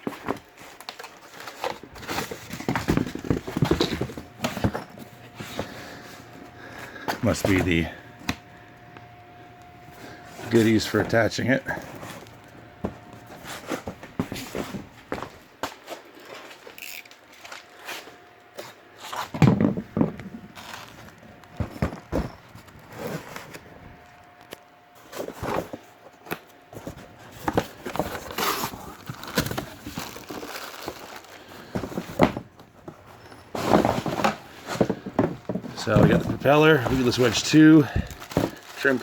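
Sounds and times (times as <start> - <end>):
cardboard and plastic rustling: 0.0 - 39.0
objects knocking when set down: 19.3 - 20.4.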